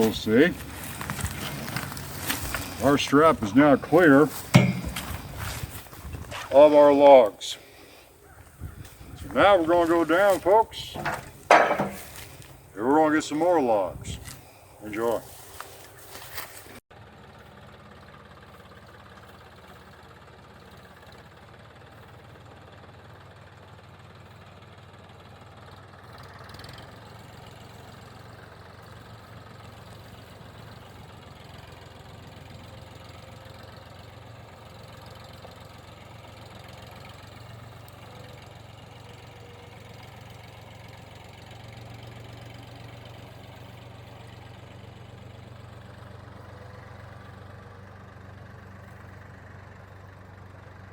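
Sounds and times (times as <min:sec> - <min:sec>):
tractor engine running: 0:00.0 - 0:50.9.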